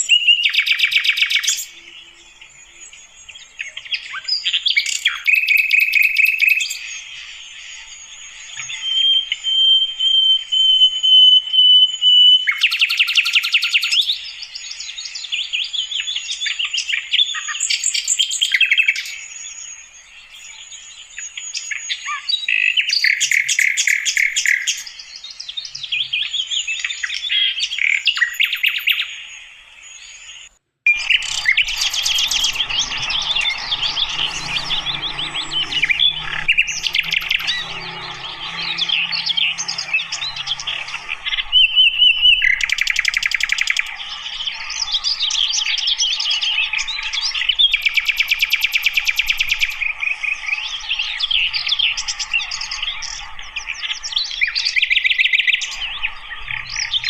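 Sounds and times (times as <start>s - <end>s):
flycatcher singing: 30.0s - 49.7s.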